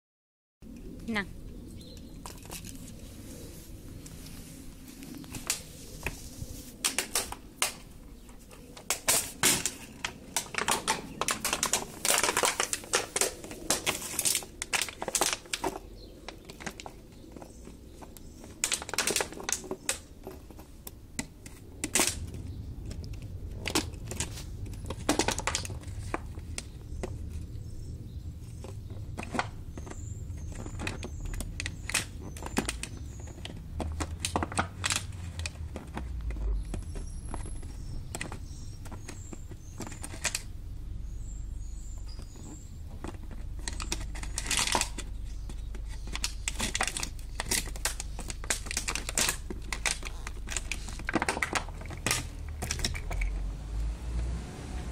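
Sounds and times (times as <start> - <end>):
dog chewing plastic bottle: 9.1 - 19.9, 42.2 - 53.4.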